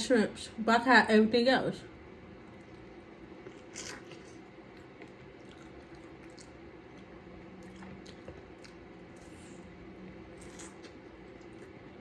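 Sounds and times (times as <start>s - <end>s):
person chewing wet food: 2.4s - 12.0s.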